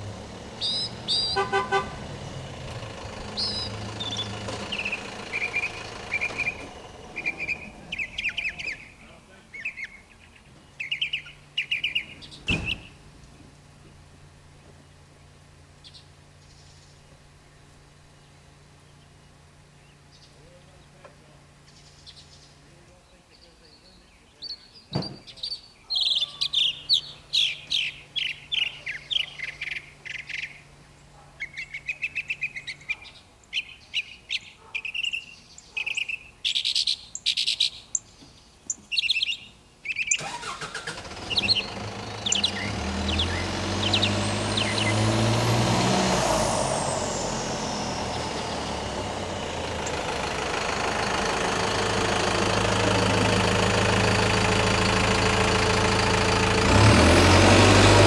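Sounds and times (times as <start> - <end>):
engine running: 0.0 - 9.5, 10.2 - 22.6, 40.2 - 58.0
birds chirping: 0.0 - 58.0.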